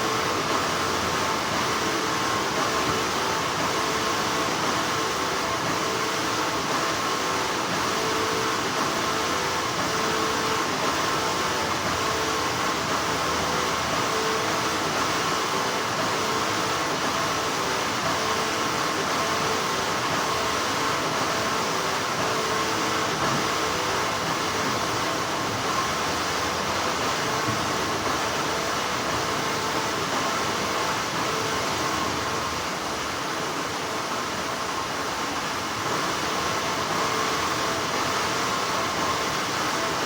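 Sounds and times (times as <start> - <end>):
factory machinery whirring: 0.0 - 40.0.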